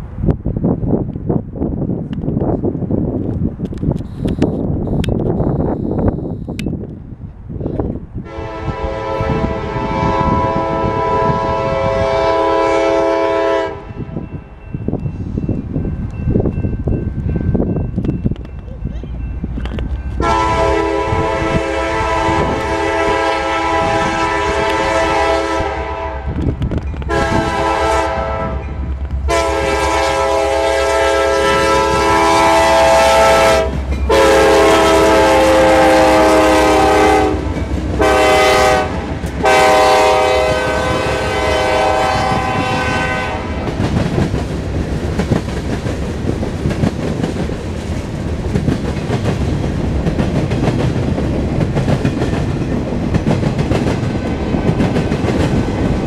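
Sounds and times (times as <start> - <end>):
locomotive air horn blasts: 8.2 - 14.2, 20.1 - 26.4, 27.1 - 28.7, 29.3 - 43.7.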